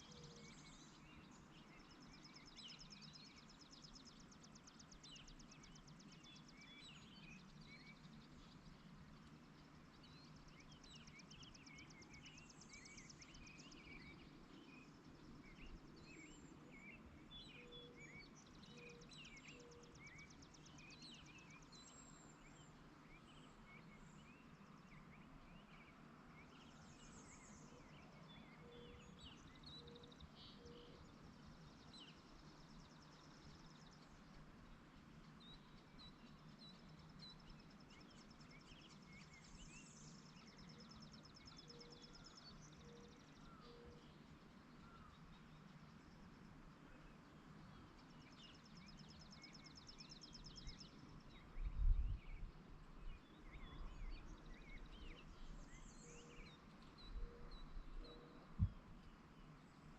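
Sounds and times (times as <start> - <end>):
birds chirping and trilling: 53.0 - 59.7.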